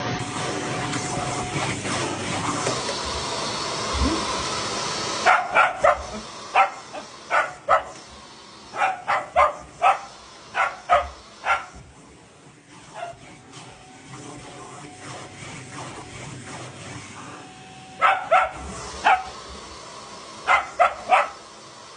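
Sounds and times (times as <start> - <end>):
vacuum cleaner running: 0.0 - 21.9
dog barking: 5.2 - 8.0, 8.7 - 11.8, 12.9 - 13.2, 18.0 - 19.4, 20.4 - 21.4.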